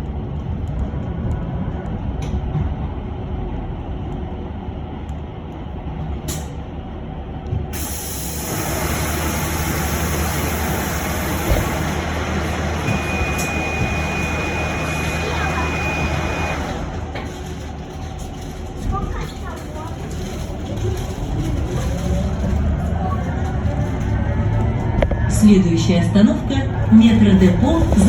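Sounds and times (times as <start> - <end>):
bus interior low hum: 0.0 - 28.0
compressed air hissing: 7.8 - 11.9.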